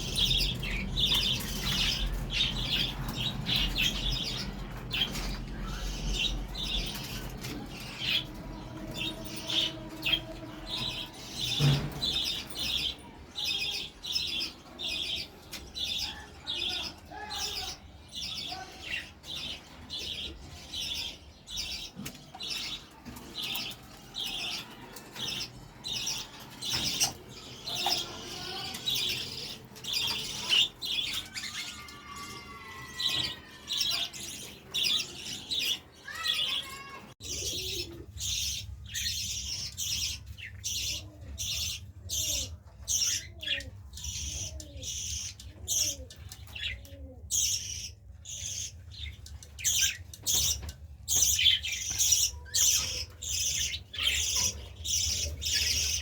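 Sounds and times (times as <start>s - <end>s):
cage birds chirping: 0.0s - 56.0s
pigeons cooing: 37.2s - 39.2s, 40.0s - 49.0s.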